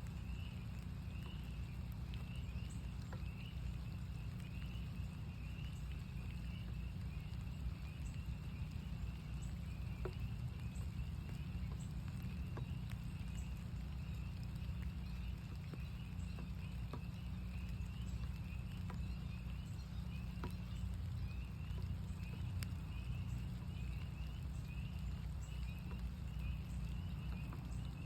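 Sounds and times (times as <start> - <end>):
frogs peeping chorus: 0.0 - 28.0
raindrops ticking: 0.0 - 28.0
steady low rumble: 0.0 - 28.0.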